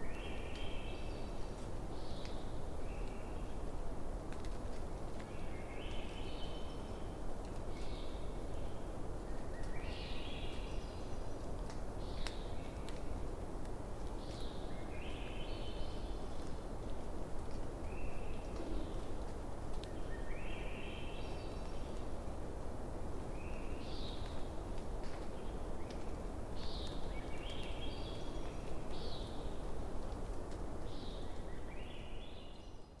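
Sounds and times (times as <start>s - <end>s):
campfire crackle: 29.5s - 31.4s.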